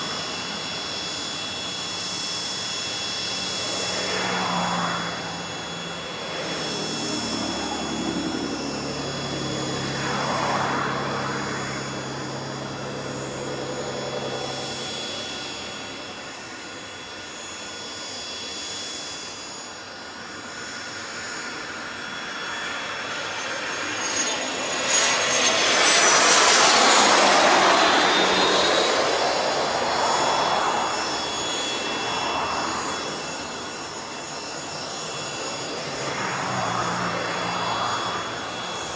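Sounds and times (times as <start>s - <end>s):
jet engines whining: 0.0s - 38.9s
jet noise rush: 23.6s - 38.9s.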